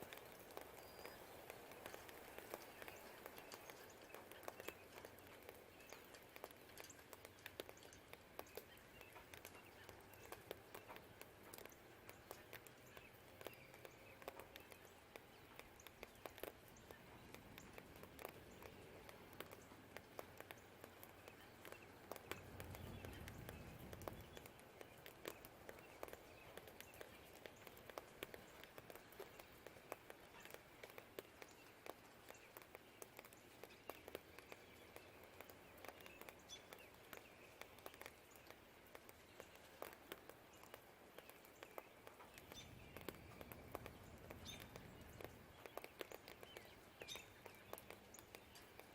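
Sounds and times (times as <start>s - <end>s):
faint steady rain: 0.0s - 48.9s
faint bird chirps: 0.1s - 29.6s, 30.2s - 48.9s
drips tapping: 0.1s - 48.9s.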